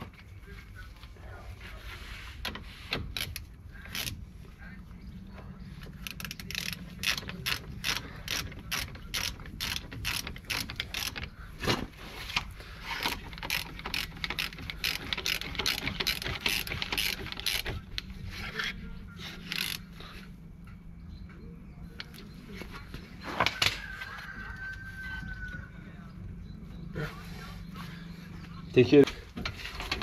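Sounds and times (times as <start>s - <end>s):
hand tools clicking on metal: 6.0s - 11.3s, 13.0s - 18.6s.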